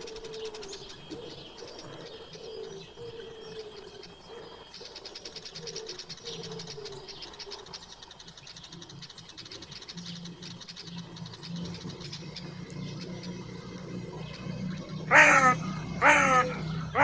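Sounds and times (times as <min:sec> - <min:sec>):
bird cooing: 0:00.0 - 0:08.4, 0:09.4 - 0:17.0
rapid high bird chirps: 0:05.2 - 0:17.0.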